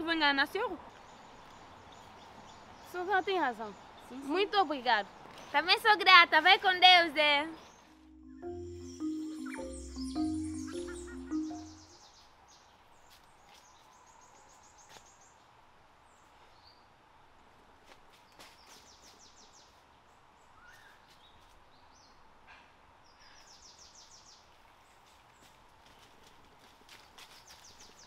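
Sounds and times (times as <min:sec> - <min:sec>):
birds trilling: 0:09.0 - 0:11.9.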